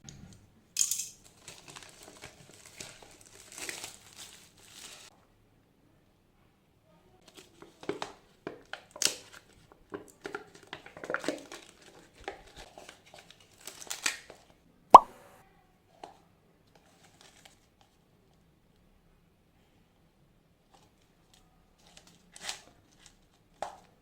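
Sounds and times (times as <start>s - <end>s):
sharp clack: 15.0s - 15.4s.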